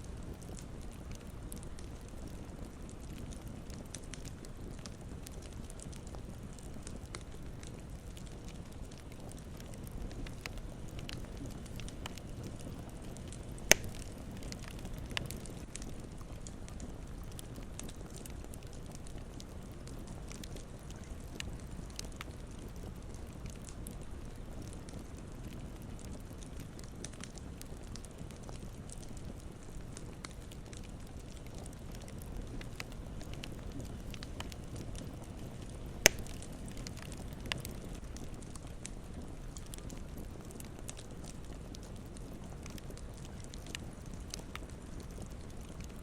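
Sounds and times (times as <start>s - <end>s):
campfire rumble: 0.0s - 46.0s
wood crackling and popping: 0.0s - 46.0s
loud sharp pop from fire: 13.6s - 14.2s, 36.0s - 37.1s.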